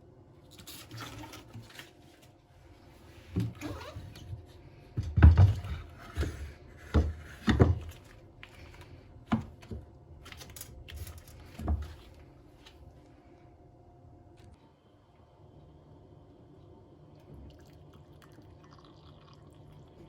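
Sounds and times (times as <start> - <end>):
objects knocking and thumping: 5.0 - 8.2.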